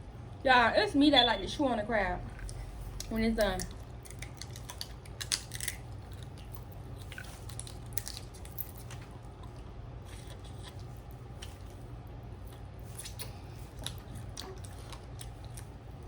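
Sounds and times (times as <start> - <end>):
steady low hum: 0.0 - 16.0
wet squishing: 2.3 - 16.0
crab shell cracking: 3.6 - 9.5.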